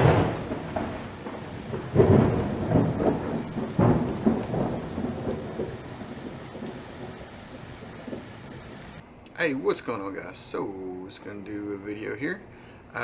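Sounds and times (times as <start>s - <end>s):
rain: 0.0s - 9.0s
thunder rumbling: 0.0s - 9.0s.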